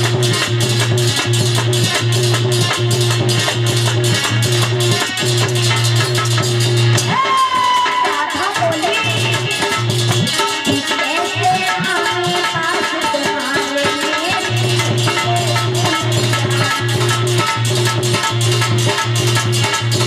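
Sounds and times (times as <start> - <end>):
hand drum rhythm: 0.0 - 20.0
wavering melody line: 14.2 - 19.8.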